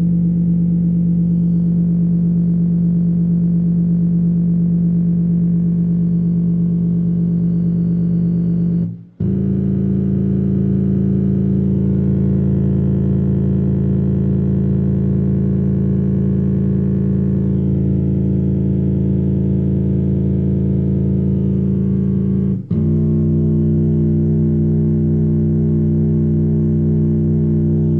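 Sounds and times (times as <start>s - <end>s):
distorted bass synth notes: 5.4s - 27.9s.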